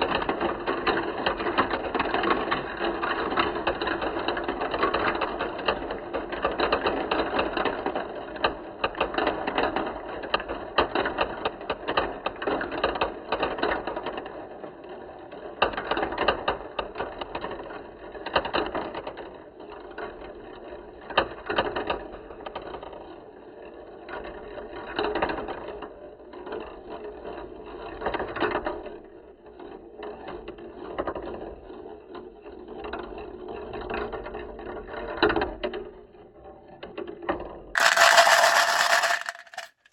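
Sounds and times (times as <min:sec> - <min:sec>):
marbles rolling and clicking on track: 0:37.8 - 0:39.9.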